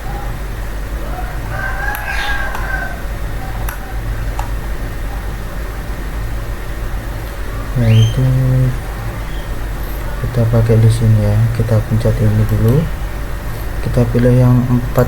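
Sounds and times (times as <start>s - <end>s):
steady low hum: 0.0s - 15.0s
drawn-out bird call: 1.1s - 4.1s, 7.5s - 10.4s.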